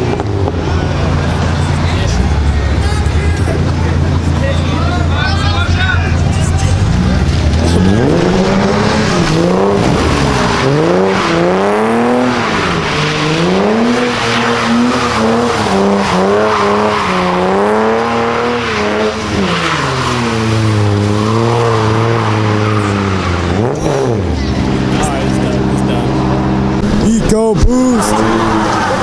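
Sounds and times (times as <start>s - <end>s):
car engine revving: 0.0s - 29.0s
spinning tires squealing: 6.9s - 24.2s, 27.8s - 29.0s.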